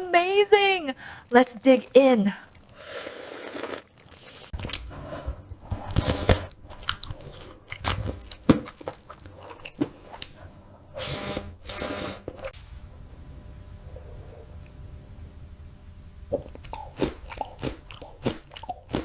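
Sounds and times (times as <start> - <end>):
wet chewing and crunching: 2.5 - 10.9, 16.4 - 19.0.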